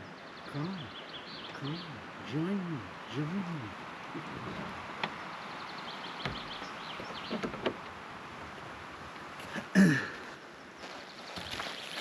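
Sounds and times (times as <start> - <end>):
outdoor background noise: 0.0 - 12.0
short loud vocal sound: 1.6 - 3.7.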